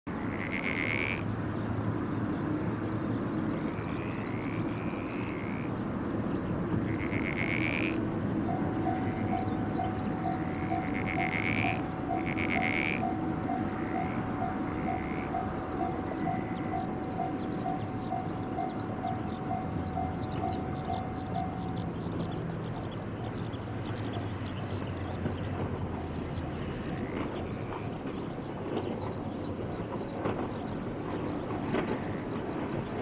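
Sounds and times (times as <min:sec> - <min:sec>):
distant train rumble: 0:00.1 - 0:33.0
high chirping: 0:07.4 - 0:32.9
level-crossing bell dinging: 0:08.4 - 0:22.6.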